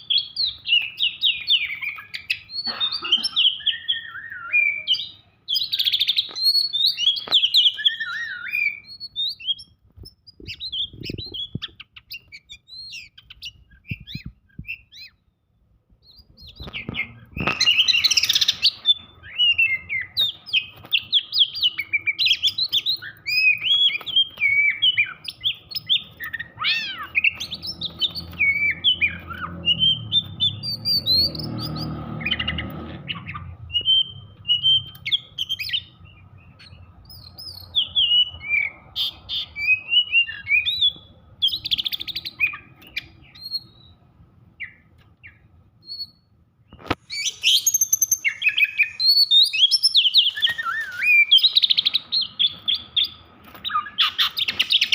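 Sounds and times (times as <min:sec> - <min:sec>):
songbird whistling fast phrases: 0:03.5 - 0:15.2, 0:16.0 - 0:31.9, 0:47.0 - 0:54.9.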